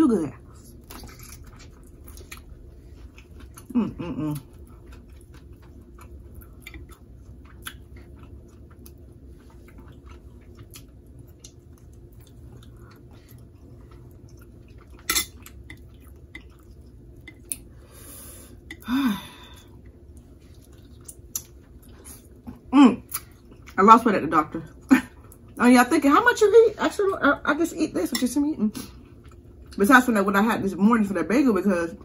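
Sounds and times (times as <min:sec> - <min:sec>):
wet chewing and smacking: 0:00.5 - 0:17.8, 0:19.7 - 0:23.8, 0:24.7 - 0:25.6, 0:28.9 - 0:29.8.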